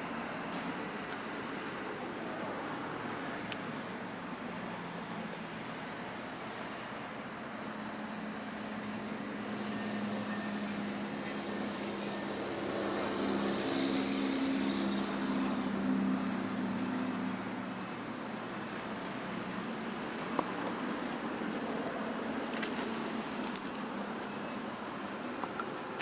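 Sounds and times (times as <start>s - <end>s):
engine passing by: 7.9s - 17.8s.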